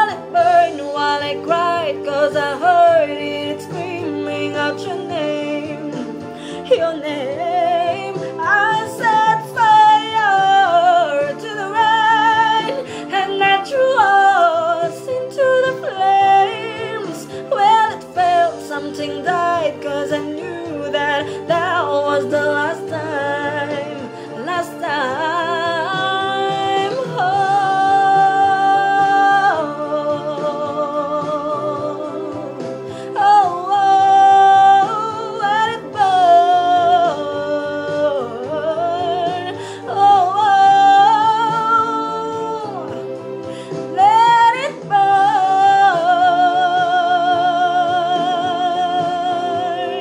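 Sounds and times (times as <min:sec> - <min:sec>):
steady musical accompaniment: 0:00.0 - 0:50.0.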